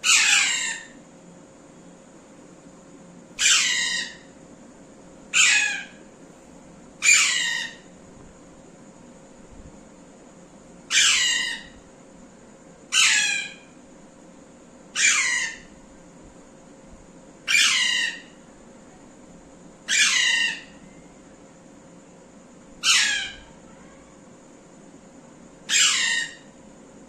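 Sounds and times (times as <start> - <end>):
parrot squawks: 0.0 - 1.0, 3.4 - 4.2, 5.3 - 6.0, 7.0 - 7.8, 10.9 - 11.7, 12.9 - 13.6, 15.0 - 15.7, 17.5 - 18.3, 19.9 - 20.8, 22.8 - 23.5, 25.7 - 26.5.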